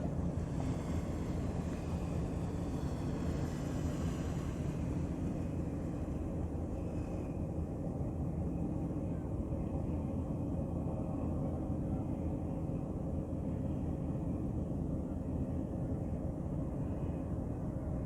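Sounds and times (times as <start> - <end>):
ship engine rumbling: 0.0 - 8.9.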